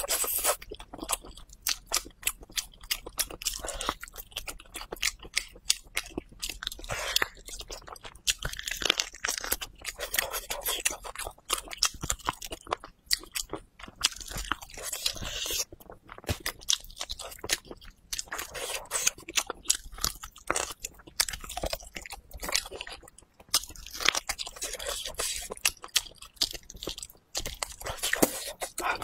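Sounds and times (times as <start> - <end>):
person chewing with mouth clicks: 0.0 - 29.0.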